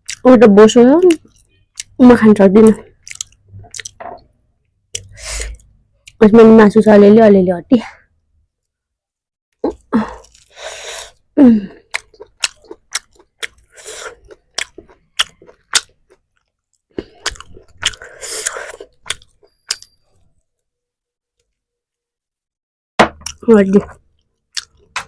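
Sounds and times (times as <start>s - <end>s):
crunchy chewing: 2.9s - 4.0s, 11.8s - 20.3s, 23.2s - 25.0s
wet mouth clicks: 4.9s - 6.2s.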